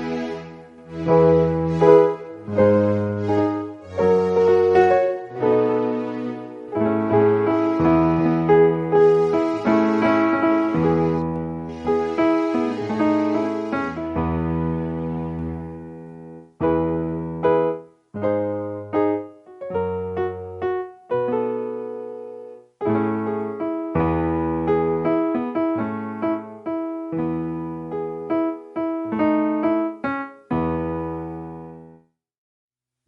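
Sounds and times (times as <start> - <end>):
piano music: 0.0 - 32.1.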